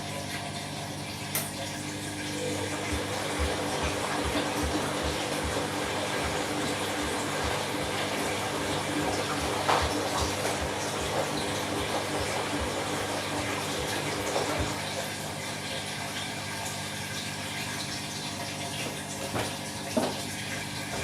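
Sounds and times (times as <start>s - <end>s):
water splashing in washing machine: 0.0s - 21.0s
soft low thumps: 2.9s - 12.8s.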